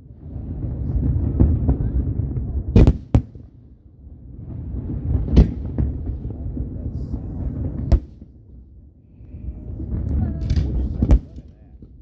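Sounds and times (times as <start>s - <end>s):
fireworks rumble: 0.0s - 12.0s
fireworks bangs: 0.6s - 3.4s, 4.4s - 8.6s, 9.8s - 11.6s.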